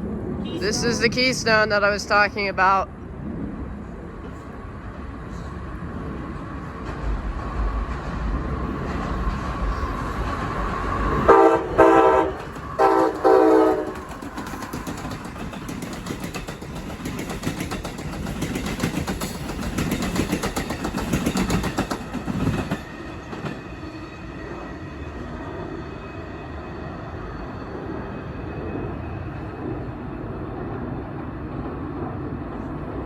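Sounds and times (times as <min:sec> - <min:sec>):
train wheels clattering: 0:06.8 - 0:23.7
train horn blasts: 0:11.2 - 0:14.0.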